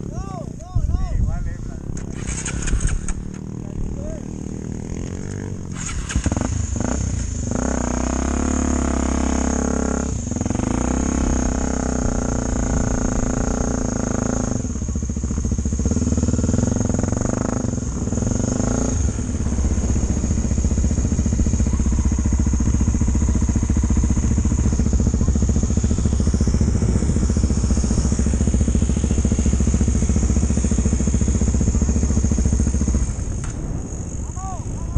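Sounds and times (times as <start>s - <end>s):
motorcycle engine revving: 0.0s - 34.9s
steady high-pitched tone: 18.8s - 34.9s.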